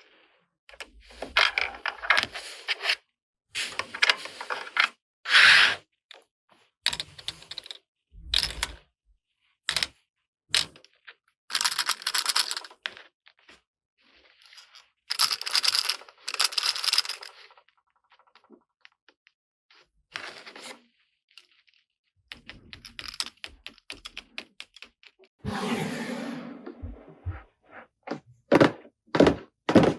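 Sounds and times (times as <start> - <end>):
plastic pieces clicking and tapping: 22.3 - 25.2.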